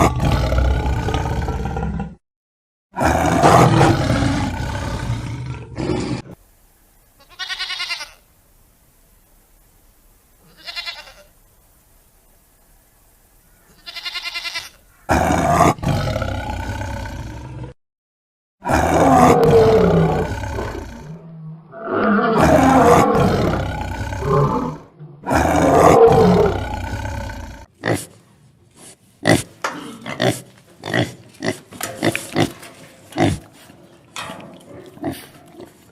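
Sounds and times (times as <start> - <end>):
big cat roaring: 0.0 - 2.2, 3.0 - 6.4, 15.1 - 17.8, 18.6 - 27.7
animal bleats: 7.2 - 8.3, 10.4 - 11.3, 13.7 - 15.4.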